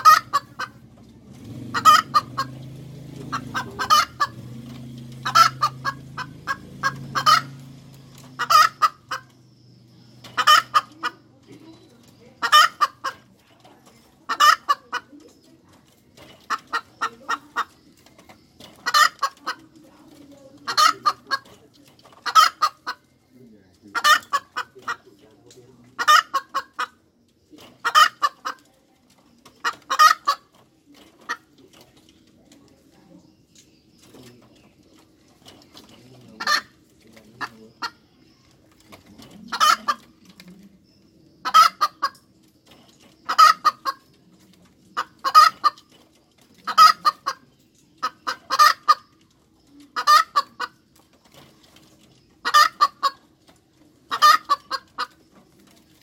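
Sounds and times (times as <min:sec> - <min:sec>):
hen cackling: 0:00.0 - 0:09.5, 0:10.1 - 0:11.5, 0:12.4 - 0:13.4, 0:14.2 - 0:15.4, 0:16.4 - 0:17.9, 0:18.6 - 0:19.8, 0:20.5 - 0:21.6, 0:22.2 - 0:23.1, 0:23.9 - 0:25.2, 0:25.9 - 0:27.0, 0:27.8 - 0:28.6, 0:29.6 - 0:30.5, 0:36.3 - 0:36.8, 0:39.1 - 0:40.3, 0:41.4 - 0:42.3, 0:43.2 - 0:44.1, 0:45.0 - 0:45.9, 0:46.6 - 0:49.2, 0:49.8 - 0:50.9, 0:52.4 - 0:53.4, 0:54.1 - 0:55.2.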